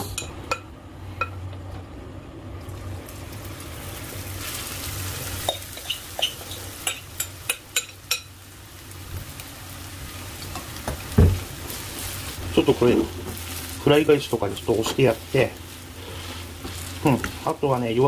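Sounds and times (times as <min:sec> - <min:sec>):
batter sizzling in oil: 0:02.6 - 0:18.0
utensil tapping pan: 0:05.4 - 0:08.3.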